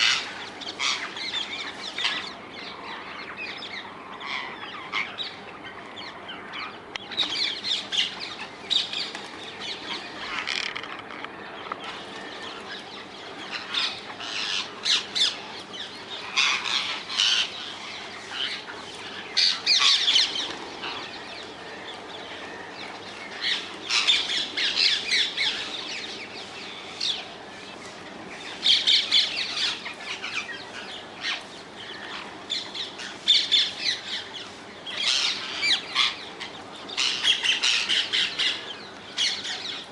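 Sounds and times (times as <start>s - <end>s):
parakeets screeching squawks: 0.0s - 2.4s, 10.0s - 10.9s, 13.4s - 15.4s, 16.2s - 21.2s, 35.0s - 39.8s.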